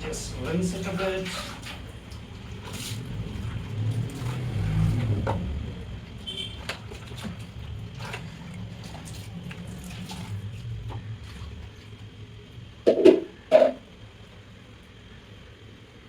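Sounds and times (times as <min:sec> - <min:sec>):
water trickling in sink: 0:06.4 - 0:12.2.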